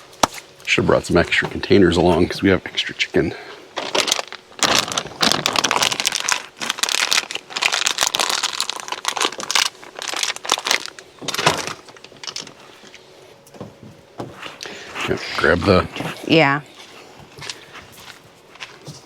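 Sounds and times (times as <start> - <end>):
packaging crinkling: 3.7 - 13.0.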